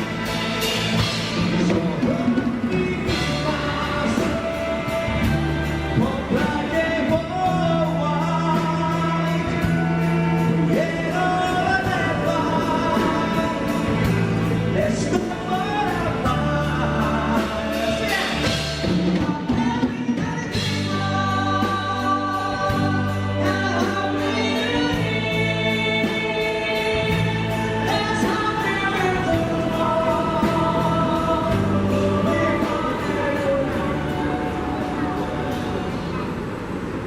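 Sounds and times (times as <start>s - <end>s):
band music with singing: 0.0s - 37.0s.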